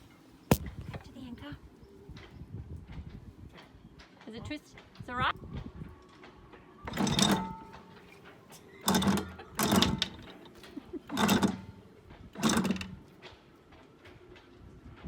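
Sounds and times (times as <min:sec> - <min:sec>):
anchor chain clanking and rattling: 0:06.9 - 0:13.2.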